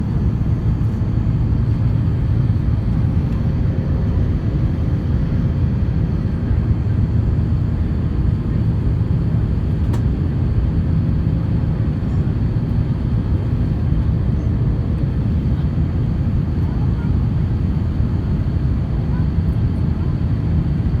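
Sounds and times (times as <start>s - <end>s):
airplane cabin rumble: 0.0s - 21.0s
small click: 9.9s - 10.1s.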